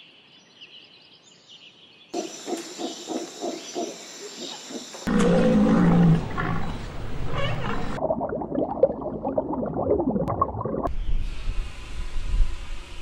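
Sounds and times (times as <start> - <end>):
loud low animal calls: 5.0 - 8.0.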